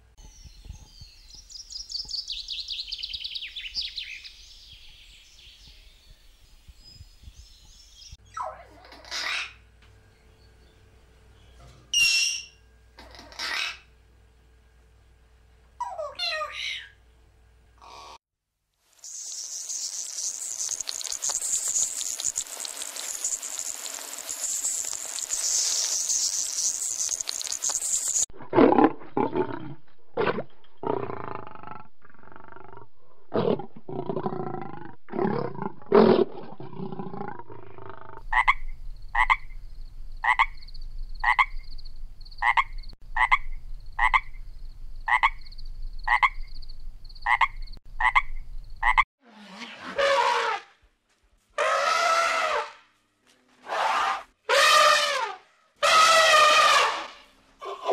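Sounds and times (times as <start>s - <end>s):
steady high-pitched hiss: 18.7s - 28.3s
lions growling and roaring: 28.4s - 38.2s
frog croaking: 36.8s - 39.6s, 40.2s - 41.7s, 42.3s - 44.4s, 45.0s - 49.0s.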